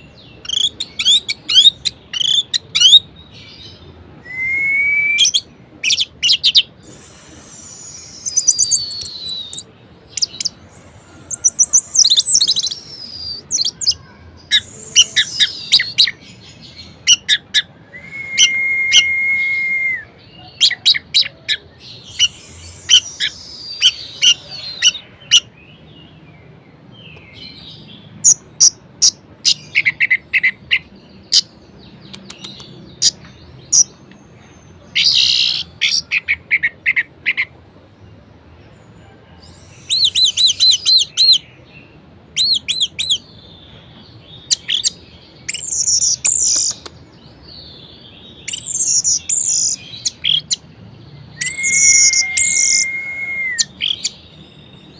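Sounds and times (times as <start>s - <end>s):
thrush singing varied song: 3.8s - 16.2s, 16.9s - 25.6s.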